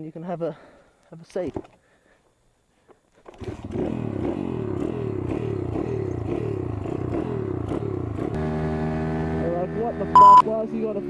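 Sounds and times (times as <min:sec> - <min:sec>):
pit bike engine starting and revving: 0:03.4 - 0:10.1.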